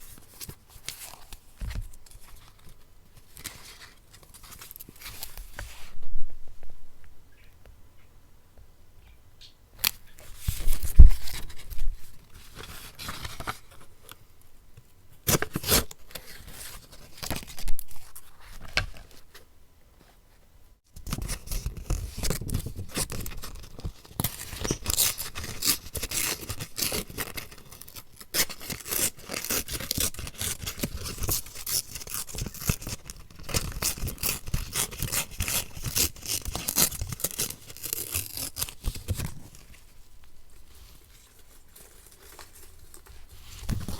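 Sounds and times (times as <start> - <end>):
scissors cutting paper: 28.4 - 39.1.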